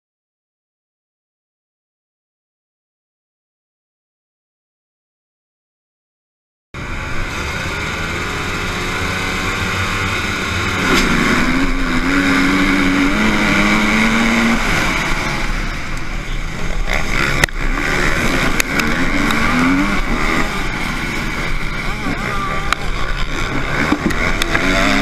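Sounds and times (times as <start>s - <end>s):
din of motocross bikes: 6.8s - 25.0s
motorcycle engine shifting gears: 6.8s - 25.0s
sharp click: 10.8s - 11.2s.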